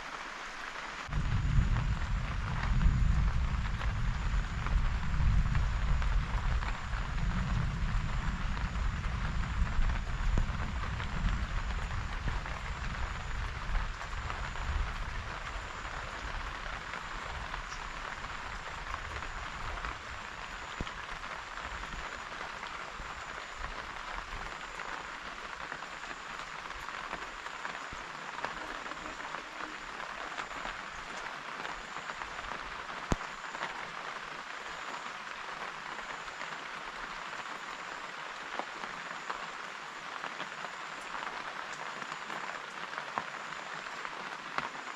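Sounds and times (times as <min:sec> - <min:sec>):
steady rain falling: 0:00.0 - 0:44.9
low rumble: 0:01.1 - 0:19.8.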